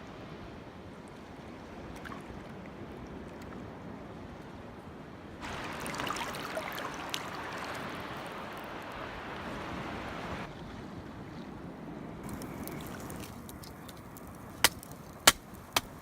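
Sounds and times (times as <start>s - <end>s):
rushing water: 5.4s - 11.4s, 12.2s - 16.0s.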